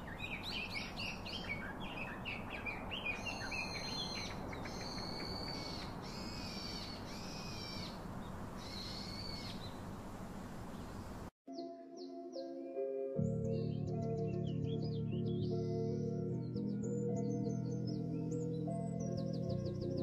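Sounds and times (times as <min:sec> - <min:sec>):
birds calling: 0:00.0 - 0:11.3
faint steady hiss: 0:06.0 - 0:11.3.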